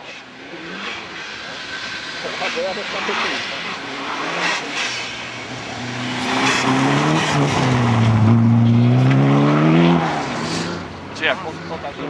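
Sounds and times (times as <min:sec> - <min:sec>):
car engine revving high: 0:02.2 - 0:11.8.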